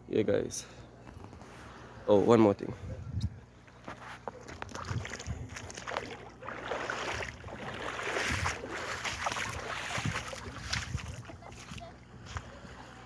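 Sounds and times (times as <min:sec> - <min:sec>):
wind buffeting microphone: 0:02.7 - 0:03.5, 0:04.6 - 0:13.0
waves washing on shore: 0:05.8 - 0:11.7.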